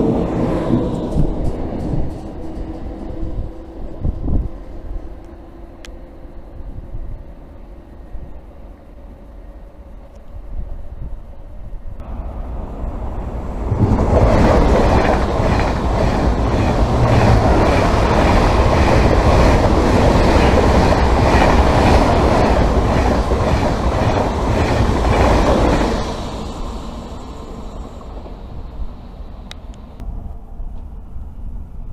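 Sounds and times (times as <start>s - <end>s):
high-speed train passing: 0.0s - 31.9s
wheels clattering over rail joints: 12.4s - 26.6s.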